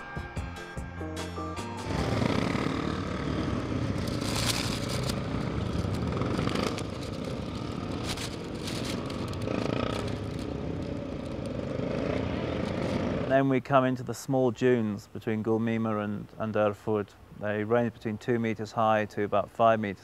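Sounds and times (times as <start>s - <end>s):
motorcycle engines running: 0.0s - 13.3s.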